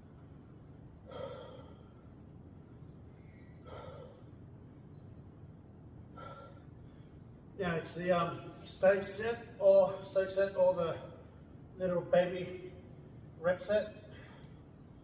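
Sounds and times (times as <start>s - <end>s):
low background hum: 0.0s - 15.0s
man breathing hard: 1.0s - 2.2s, 3.2s - 4.5s, 6.1s - 7.3s.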